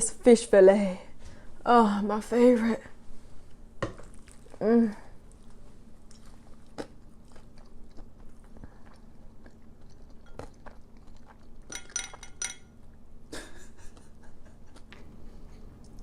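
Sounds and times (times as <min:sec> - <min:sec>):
close chewing with wet mouth sounds: 0:04.0 - 0:12.0.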